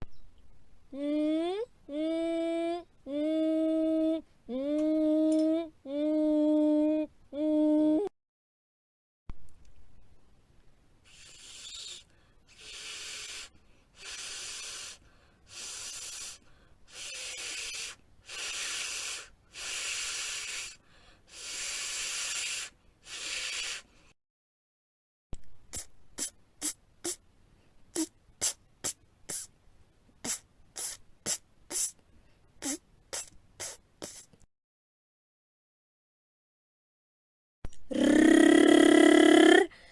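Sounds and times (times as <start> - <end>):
person hissing consonant: 0.9 - 8.1, 11.1 - 23.9, 25.7 - 27.2, 27.9 - 29.5, 30.2 - 32.0, 32.6 - 34.4, 37.8 - 39.9
person making consonant clicks: 4.6 - 5.6, 28.0 - 29.5.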